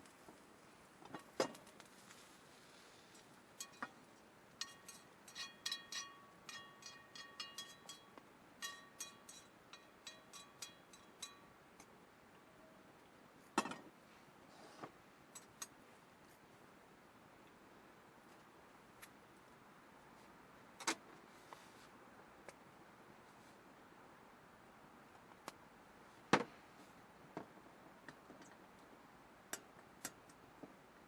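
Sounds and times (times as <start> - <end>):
utensil clinking in a cup: 4.6 - 11.4.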